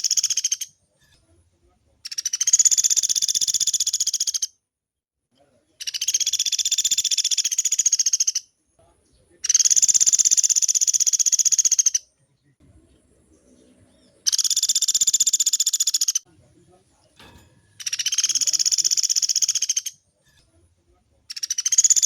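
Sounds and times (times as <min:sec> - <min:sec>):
woodpecker rattling calls: 0:00.0 - 0:00.7, 0:02.1 - 0:04.5, 0:05.8 - 0:08.5, 0:09.4 - 0:12.1, 0:14.1 - 0:16.2, 0:17.8 - 0:20.0, 0:21.3 - 0:22.0.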